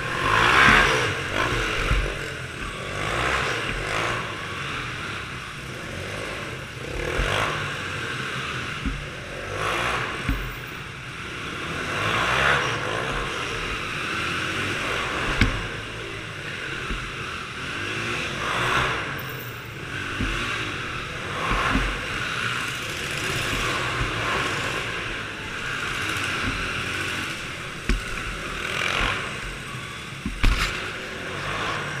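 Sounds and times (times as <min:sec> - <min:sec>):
sharp knocks: 0:00.0 - 0:02.8, 0:08.8 - 0:09.1, 0:15.2 - 0:15.9, 0:16.8 - 0:17.2, 0:20.1 - 0:20.6, 0:21.2 - 0:29.6, 0:30.2 - 0:30.9
off-road vehicle engines revving: 0:00.0 - 0:32.0.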